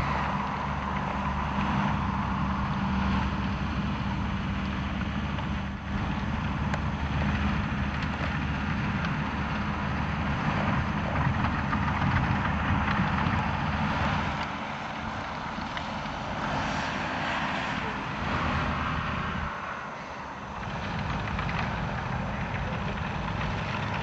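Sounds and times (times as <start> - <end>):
tractor engine running under load: 0.0 - 19.6, 20.2 - 24.0.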